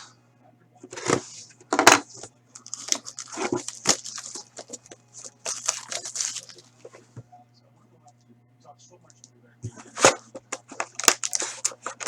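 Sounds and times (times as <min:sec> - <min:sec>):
cardboard clicks: 0:00.9 - 0:07.2, 0:09.2 - 0:12.0
plastic wrapping crinkling and tearing: 0:01.0 - 0:07.0, 0:09.8 - 0:12.0.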